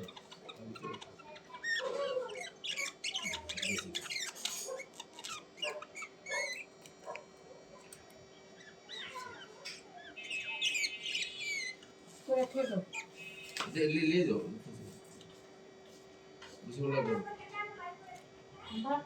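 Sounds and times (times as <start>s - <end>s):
small birds chirping: 0.0s - 14.2s.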